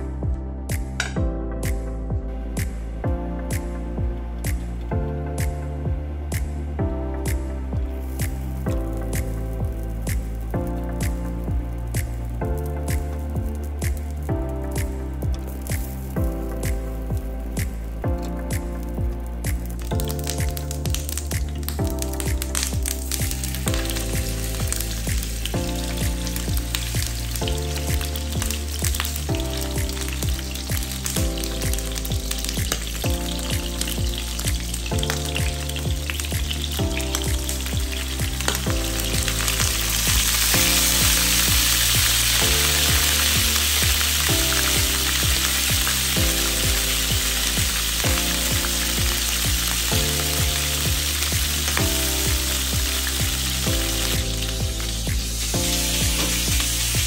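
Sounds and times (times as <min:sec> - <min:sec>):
background music: 0:00.0 - 0:57.0
fish sizzling in a frying pan: 0:19.5 - 0:57.0.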